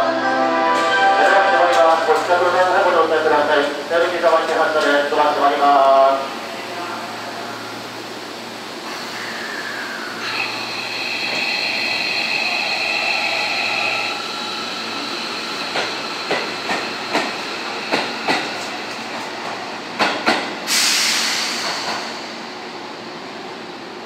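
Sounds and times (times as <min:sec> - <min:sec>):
electric train whine: 0:00.0 - 0:23.7
train wheels clacking over rail joints: 0:15.6 - 0:22.1.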